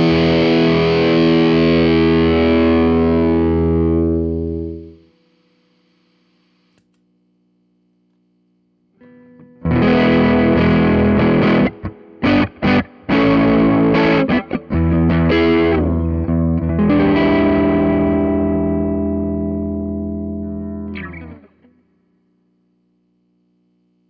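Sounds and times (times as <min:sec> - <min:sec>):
distorted electric guitar chords: 0:00.0 - 0:05.1, 0:09.0 - 0:21.9.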